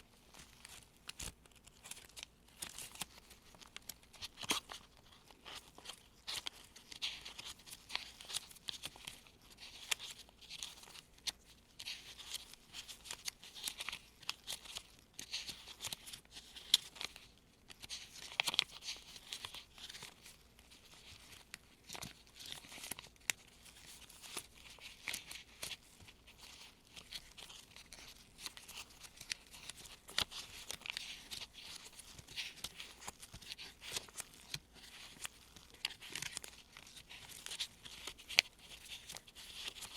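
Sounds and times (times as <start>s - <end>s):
paper bills rustling: 17.8s - 39.9s.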